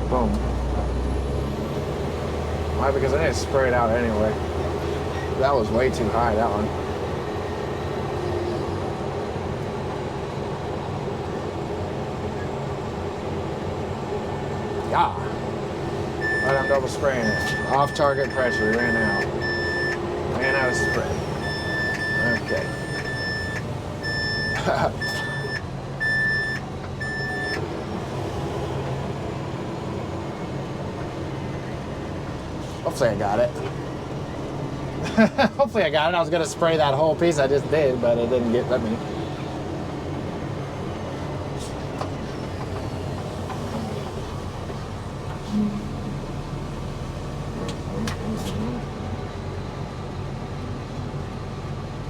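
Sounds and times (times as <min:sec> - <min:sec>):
diesel engine droning: 0:00.0 - 0:52.0
alarm beeps: 0:16.2 - 0:27.6.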